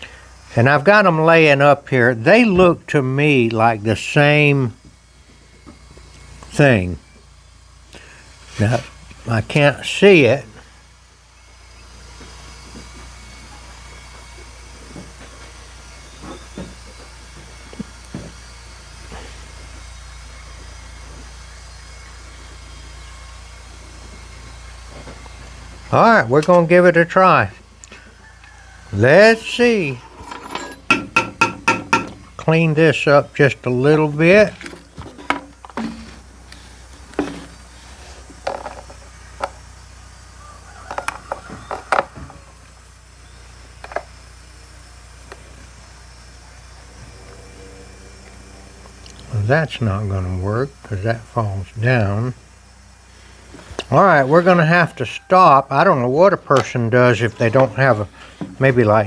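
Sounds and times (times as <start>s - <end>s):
low hum and hiss: 0.0s - 59.0s
saw chain clicking and knocking: 29.8s - 32.4s.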